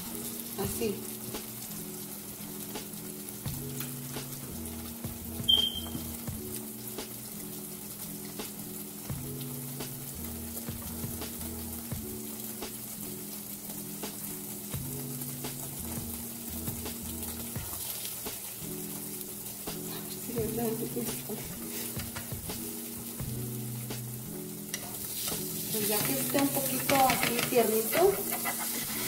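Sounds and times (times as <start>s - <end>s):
eggs sizzling in a pan: 0.0s - 29.0s.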